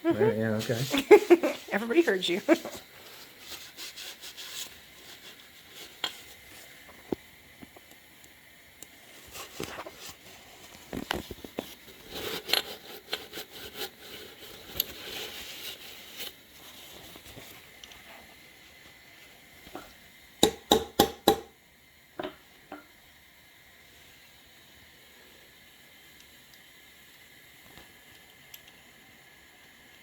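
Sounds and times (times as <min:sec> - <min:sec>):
tools clicking and knocking: 0:20.4 - 0:21.5.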